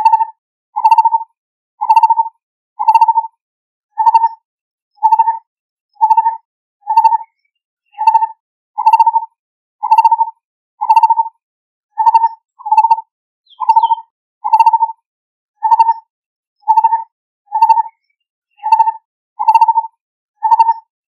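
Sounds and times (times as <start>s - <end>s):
bird trilled call: 2.8s - 3.2s, 5.0s - 5.4s, 6.0s - 9.2s, 9.8s - 11.2s, 12.0s - 14.9s, 15.6s - 16.0s, 16.6s - 19.8s, 20.4s - 20.9s.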